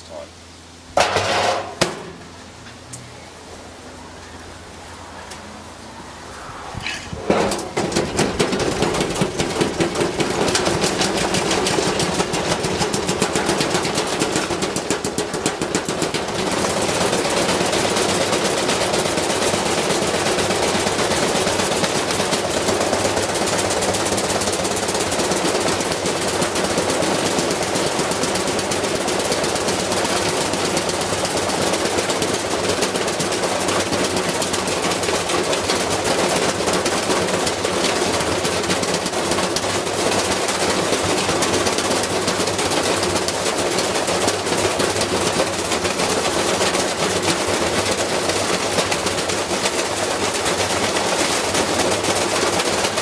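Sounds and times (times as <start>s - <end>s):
washing machine motor hum: 0.7s - 53.0s
brick banging in washing machine drum: 1.0s - 2.2s, 7.2s - 49.7s.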